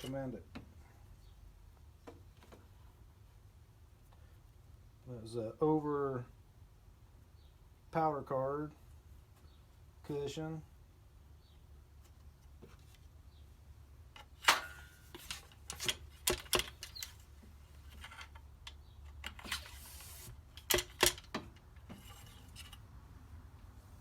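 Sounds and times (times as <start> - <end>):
sharp clicks and knocks: 14.2 - 17.2, 20.5 - 22.8.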